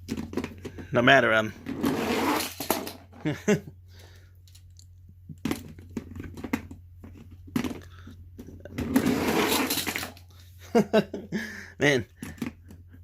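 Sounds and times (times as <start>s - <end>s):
toy trucks clacking and rattling: 7.6s - 10.3s.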